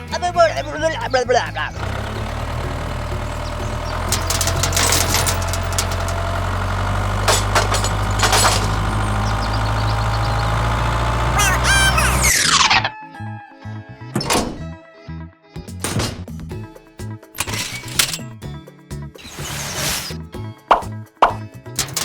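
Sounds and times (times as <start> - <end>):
small tractor engine running: 0.0 - 12.4
sharp knocks and clatters: 1.8 - 9.4, 15.8 - 16.4, 21.8 - 22.0.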